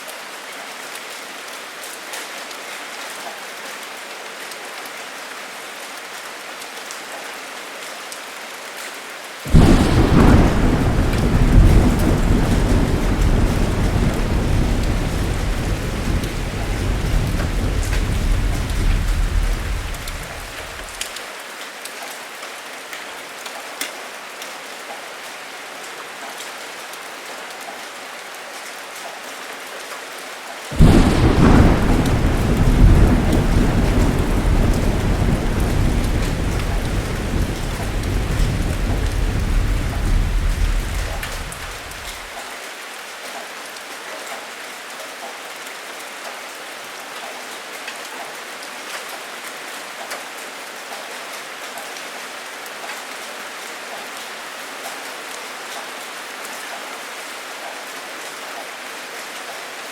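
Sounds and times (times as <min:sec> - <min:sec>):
heavy rain: 0:00.0 - 0:59.9
loud thunderclap: 0:09.5 - 0:21.0, 0:30.8 - 0:42.3
thunder rumbling: 0:09.5 - 0:21.0, 0:30.8 - 0:42.3.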